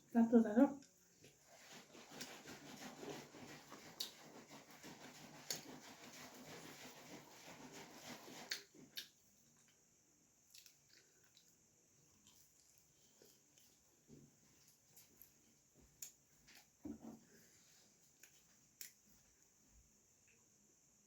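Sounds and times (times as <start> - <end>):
person chewing food: 8.3 - 9.8, 10.4 - 13.8.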